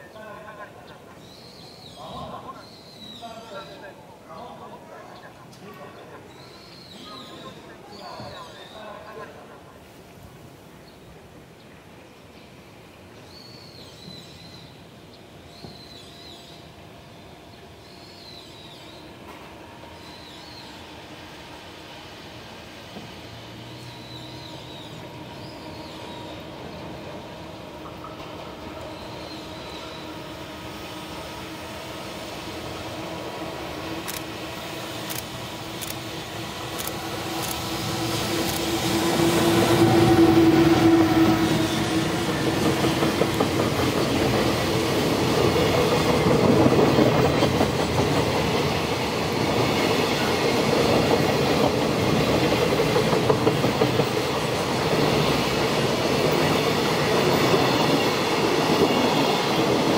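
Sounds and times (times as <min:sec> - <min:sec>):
freight train rumble: 0:14.0 - 0:59.9
wagons clickety-clack on rails: 0:41.8 - 0:59.9.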